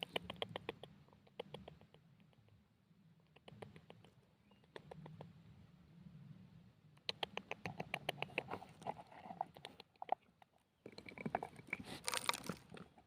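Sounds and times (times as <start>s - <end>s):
quick irregular clicks and snaps: 0.0s - 2.6s, 3.3s - 5.3s, 7.0s - 10.5s.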